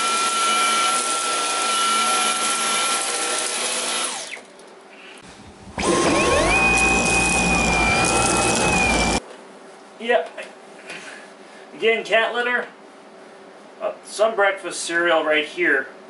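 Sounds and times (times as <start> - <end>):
cordless vacuum whining: 5.2 - 9.2.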